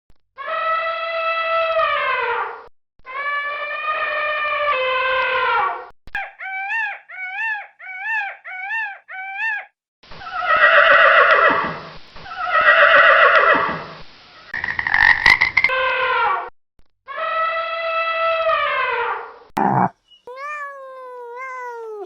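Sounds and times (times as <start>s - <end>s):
animal calls: 6.2s - 9.7s, 19.6s - 22.0s.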